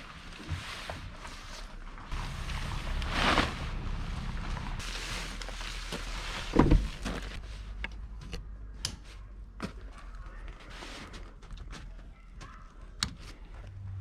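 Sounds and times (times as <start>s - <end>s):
nylon tent fly rustling: 0.0s - 7.5s
low wind rumble: 2.0s - 4.9s, 13.6s - 14.0s.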